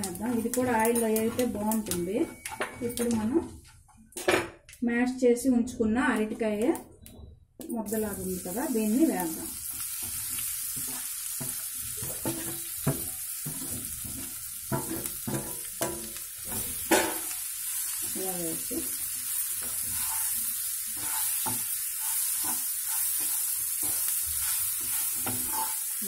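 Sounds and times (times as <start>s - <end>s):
food sizzling in hot oil: 0.0s - 3.0s, 7.9s - 26.0s
spatula scraping steel plate: 19.6s - 25.9s.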